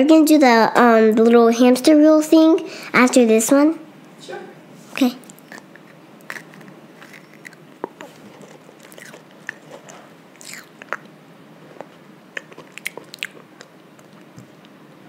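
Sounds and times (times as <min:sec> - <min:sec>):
child chewing: 0:05.0 - 0:14.8
wet mouth clicks and smacks: 0:05.2 - 0:11.2, 0:12.3 - 0:14.8.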